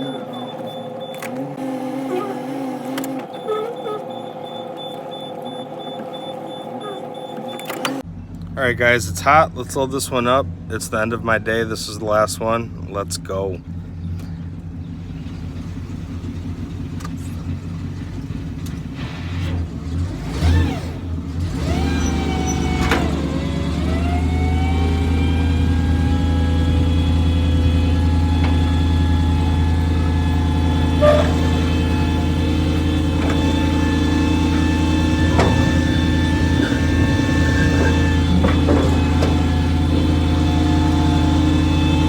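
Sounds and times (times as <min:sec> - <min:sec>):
hydraulic hoist whine: 0:00.0 - 0:08.0, 0:18.5 - 0:42.0
truck engine idling and revving: 0:00.0 - 0:42.0.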